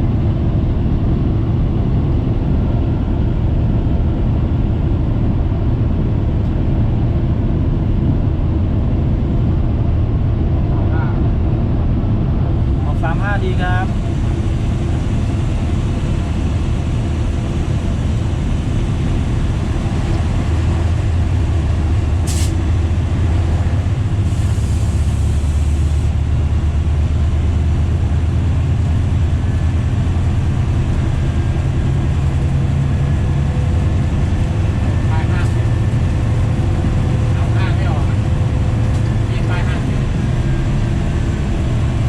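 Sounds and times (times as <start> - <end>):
diesel train engine drone: 0.0 - 42.0
short hiss: 22.2 - 22.6.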